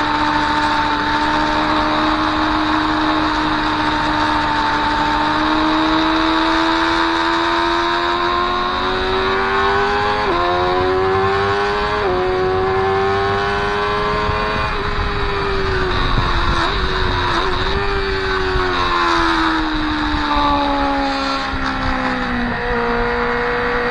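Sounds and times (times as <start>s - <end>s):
motorcycle engine accelerating: 0.0s - 23.9s
wind rush: 8.5s - 23.9s.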